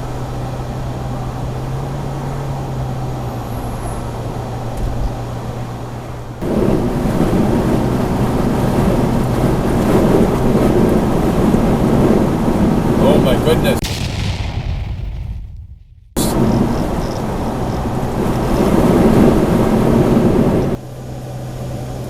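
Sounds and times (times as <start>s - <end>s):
car engine hum: 0.0s - 13.9s, 16.2s - 22.0s
road noise: 0.0s - 14.0s, 16.2s - 22.0s
rough rumbling noise: 4.3s - 20.8s.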